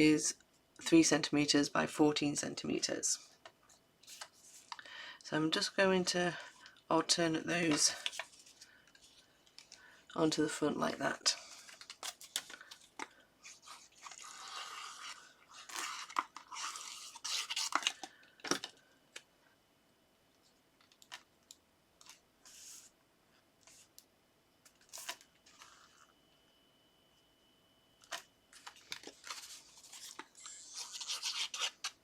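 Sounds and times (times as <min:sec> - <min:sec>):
paper rustling and sliding: 0:22.0 - 0:22.9, 0:28.1 - 0:32.0.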